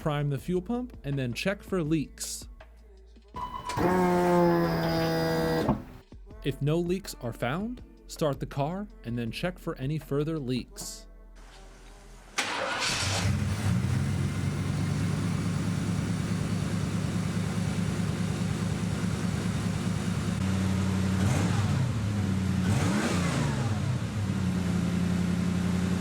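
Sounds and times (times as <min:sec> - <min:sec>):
car engine starting and idling: 0:03.4 - 0:06.0, 0:11.5 - 0:26.0
engine revving: 0:03.7 - 0:06.0, 0:12.4 - 0:26.0.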